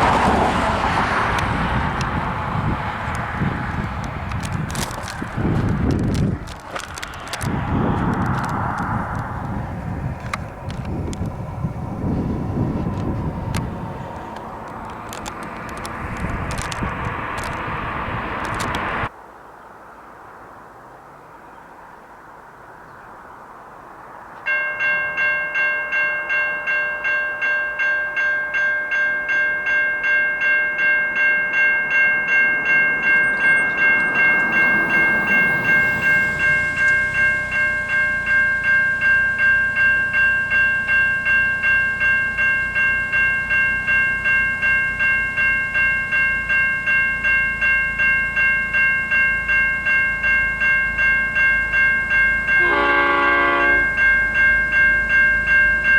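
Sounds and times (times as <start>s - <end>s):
road vehicle passing: 0.0s - 19.2s, 19.9s - 25.6s, 29.1s - 55.9s
level crossing bells ringing: 24.5s - 55.9s.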